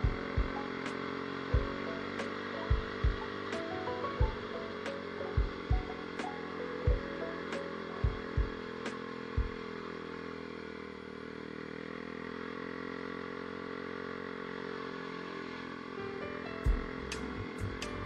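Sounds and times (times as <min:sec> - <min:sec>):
motorcycle engine running: 0:00.0 - 0:18.0
low thumps: 0:02.7 - 0:03.3, 0:05.4 - 0:05.9, 0:16.7 - 0:17.9.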